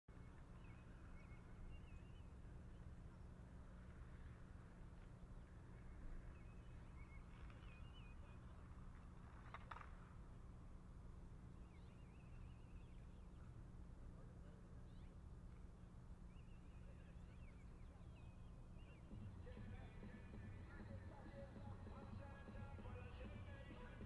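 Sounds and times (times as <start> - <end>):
songbird warbling: 0.1 - 2.9, 11.5 - 13.6, 14.8 - 23.4
low outdoor rumble: 0.1 - 24.0.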